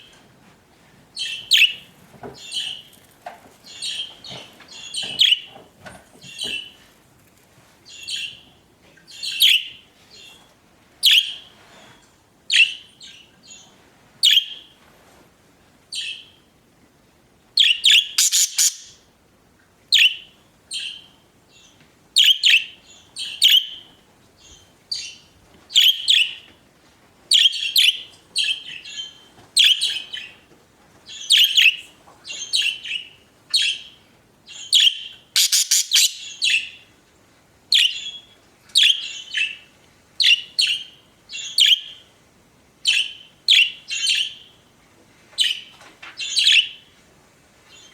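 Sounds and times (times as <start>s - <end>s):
budgerigars chirping and chattering: 17.6s - 19.0s, 31.1s - 36.8s, 42.9s - 44.5s, 45.4s - 46.8s.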